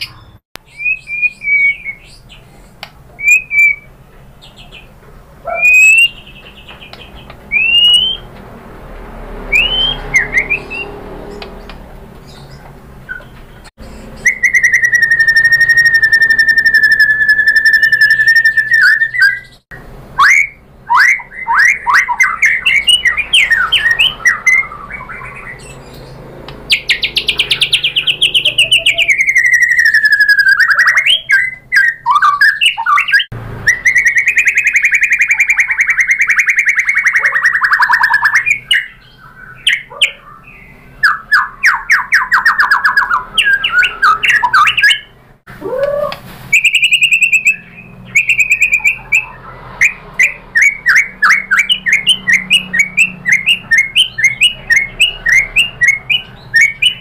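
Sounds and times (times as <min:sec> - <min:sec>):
bird singing: 0:00.0 - 0:08.4, 0:09.2 - 0:57.0.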